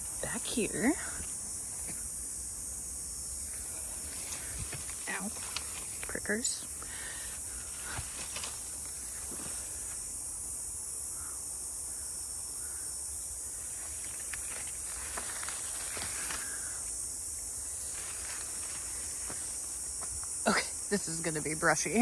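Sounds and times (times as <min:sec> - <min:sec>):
high-pitched hiss: 0:00.0 - 0:22.0
footsteps through brush: 0:03.6 - 0:10.2, 0:13.6 - 0:17.0, 0:17.6 - 0:20.4.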